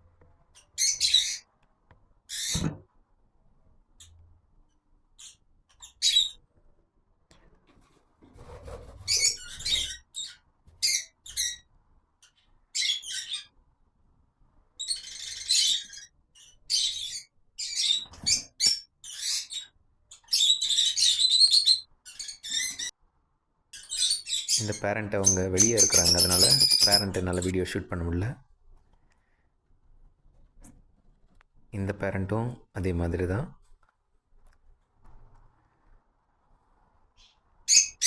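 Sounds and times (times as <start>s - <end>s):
lovebirds chirping and squawking: 0.5s - 1.5s, 2.3s - 2.8s, 5.2s - 6.4s, 8.7s - 13.6s, 14.8s - 23.0s, 23.8s - 27.6s, 37.2s - 38.0s.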